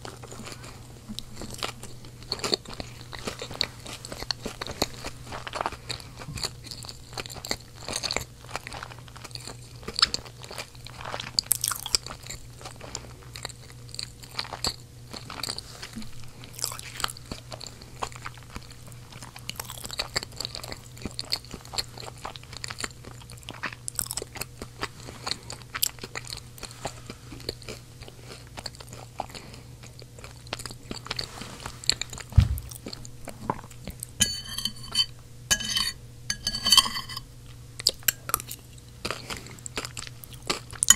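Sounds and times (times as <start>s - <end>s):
steady low hum: 0.0s - 8.4s, 24.2s - 40.9s
chewing with wet mouth clicks: 0.0s - 15.6s, 16.4s - 26.6s, 27.3s - 31.2s, 37.8s - 40.9s
dull thump: 32.3s - 33.0s
fork clinking on plate: 34.2s - 37.2s.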